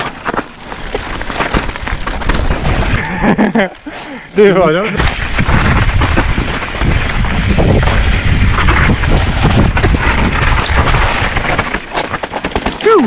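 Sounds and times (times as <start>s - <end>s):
bike knocking and rattling: 0.0s - 3.9s, 4.6s - 13.0s
wind buffeting microphone: 5.2s - 11.5s.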